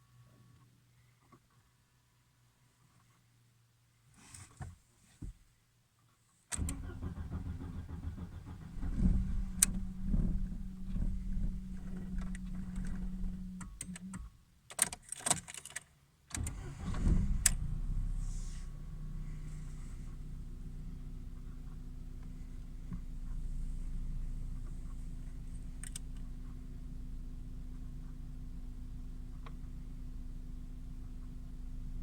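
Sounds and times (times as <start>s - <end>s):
starter cranking engine: 6.6s - 14.2s
car engine idling: 6.6s - 14.3s, 16.4s - 32.0s
clicks: 9.0s - 16.5s.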